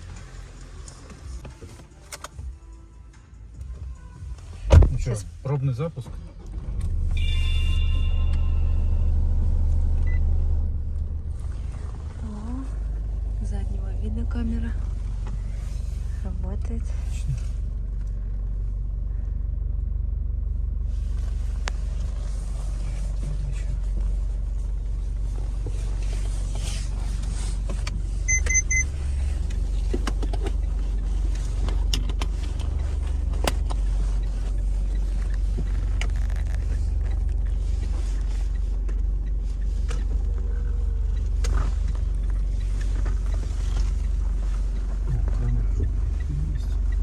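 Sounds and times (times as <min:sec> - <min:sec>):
car engine idling: 0:00.0 - 0:47.0
high electronic beeps: 0:28.3 - 0:28.9.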